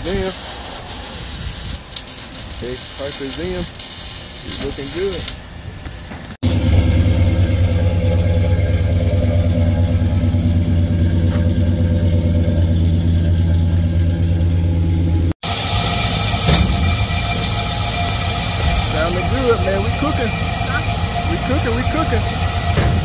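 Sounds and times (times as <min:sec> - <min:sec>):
engine idling through exhaust: 0:06.4 - 0:23.0
high-pitched mechanical engine noise: 0:06.4 - 0:23.0.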